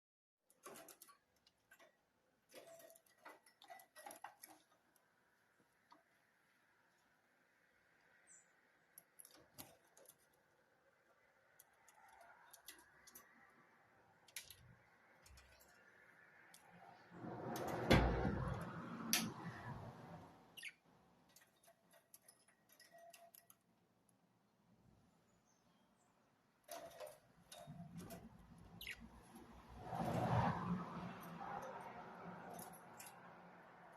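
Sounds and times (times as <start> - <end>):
faint budgerigar chirps: 20.6 - 20.8.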